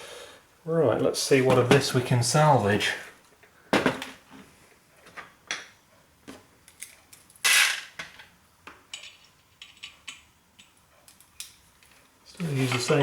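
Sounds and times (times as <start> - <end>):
metal parts clattering: 8.9 - 10.3
screwdriver and metal parts clinking: 8.9 - 12.0.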